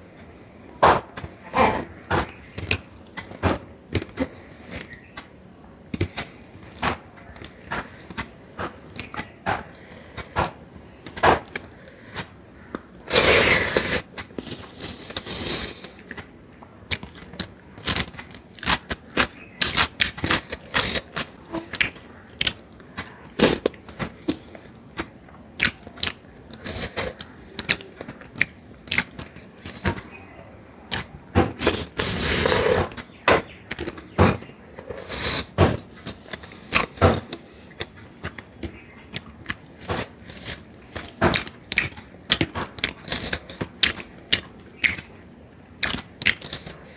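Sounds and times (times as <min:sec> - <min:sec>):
wet chewing and lip-smacking: 0:36.0 - 0:45.1.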